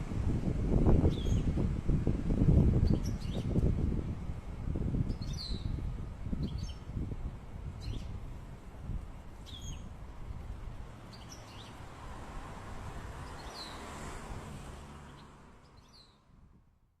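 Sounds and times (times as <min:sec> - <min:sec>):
high bird chirps: 0:01.1 - 0:01.5, 0:05.1 - 0:05.8, 0:06.4 - 0:06.9, 0:07.8 - 0:08.1, 0:09.4 - 0:09.9, 0:11.1 - 0:11.8, 0:15.1 - 0:16.2.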